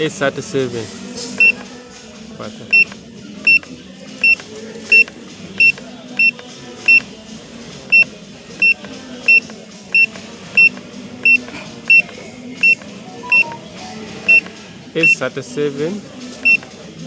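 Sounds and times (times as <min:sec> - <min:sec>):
sewing machine panel beeps: 0:01.4 - 0:01.6, 0:02.7 - 0:03.6, 0:04.2 - 0:07.1, 0:07.9 - 0:13.7, 0:14.3 - 0:15.2, 0:16.4 - 0:16.7.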